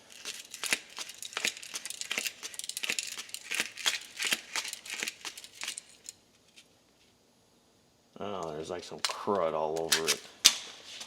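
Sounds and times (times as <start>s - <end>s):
small metal parts clicking and scraping: 0.0s - 6.6s.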